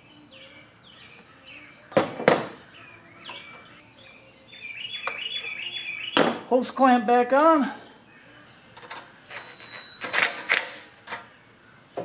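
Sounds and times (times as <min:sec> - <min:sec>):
small birds chirping: 0:00.0 - 0:06.9.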